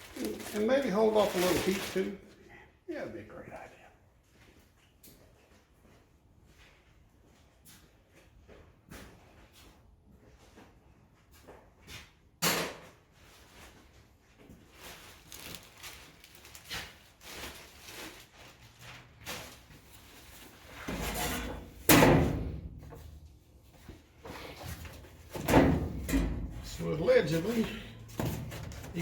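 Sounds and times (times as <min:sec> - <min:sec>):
workshop knocks and clatter: 0:11.4 - 0:13.6, 0:19.2 - 0:29.0.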